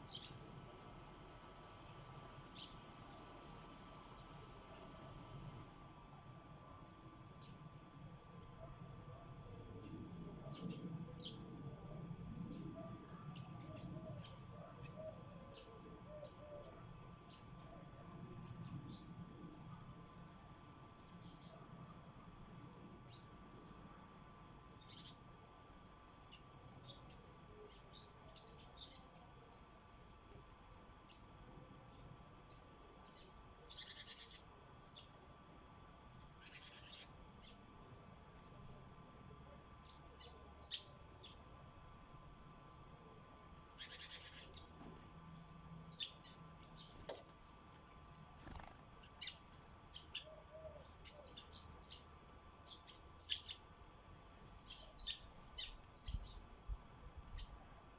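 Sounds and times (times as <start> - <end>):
sparrows chirping: 0.0 - 0.6, 1.4 - 5.1, 6.8 - 19.1, 21.1 - 22.1, 24.7 - 25.6, 26.2 - 30.1, 31.0 - 35.2, 36.1 - 37.7, 39.7 - 41.5, 43.6 - 56.5, 57.2 - 57.6
low background hum: 0.0 - 57.9.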